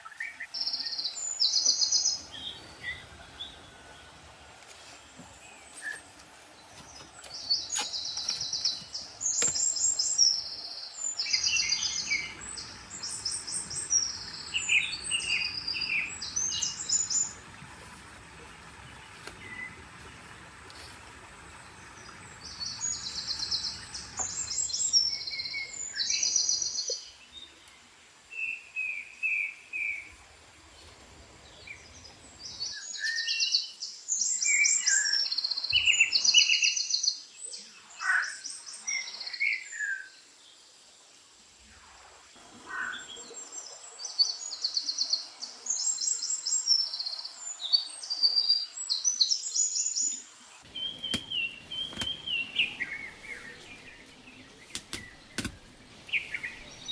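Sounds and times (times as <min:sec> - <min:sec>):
birds singing trilled phrases: 0:49.2 - 0:56.9
low bird chirps: 0:50.7 - 0:56.9.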